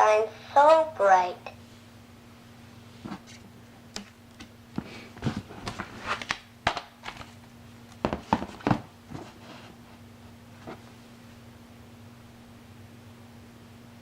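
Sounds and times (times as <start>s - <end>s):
book pages turning: 4.0s - 7.4s
book handling clicks and knocks: 4.0s - 9.4s.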